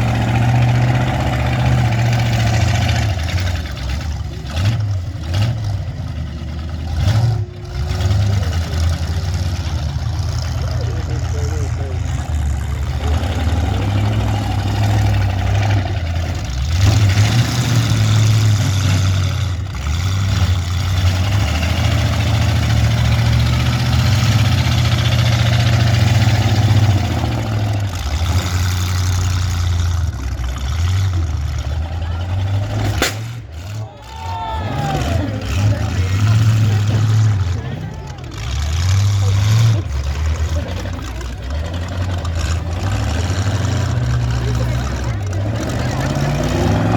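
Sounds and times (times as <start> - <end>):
car engines revving: 0.0 - 46.9
sharp crack: 32.7 - 33.9.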